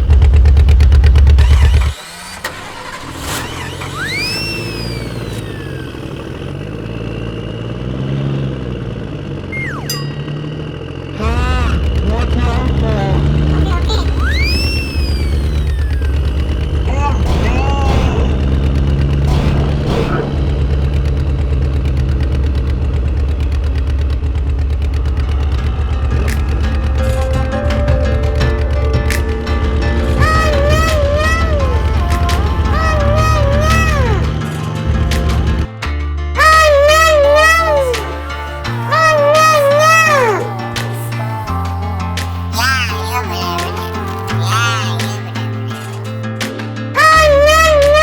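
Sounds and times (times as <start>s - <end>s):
small motor running: 0.0s - 35.7s
small tractor engine idling: 0.0s - 35.8s
whistle-like tone: 4.0s - 5.9s, 9.5s - 10.9s, 13.9s - 16.8s.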